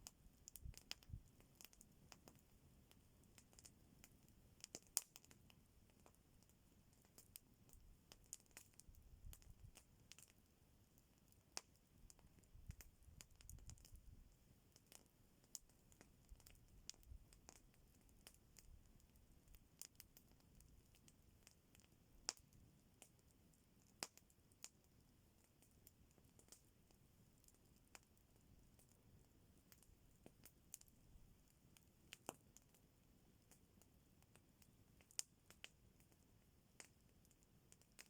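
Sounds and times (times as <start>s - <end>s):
faint campfire crackling: 0.0s - 38.0s.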